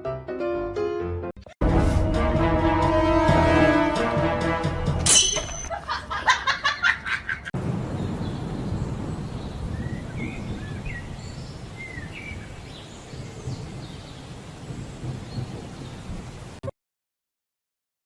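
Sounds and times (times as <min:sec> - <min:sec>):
bird chirps: 0:07.9 - 0:16.1.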